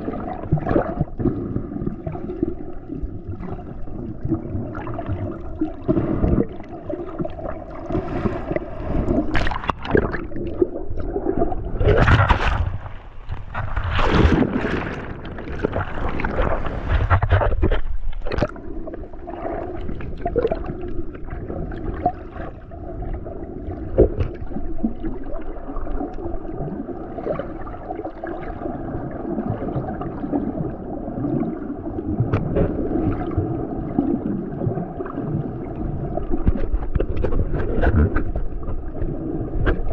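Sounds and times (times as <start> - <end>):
water splashing: 0.0 - 22.6
water sloshing and gurgling: 0.0 - 39.9.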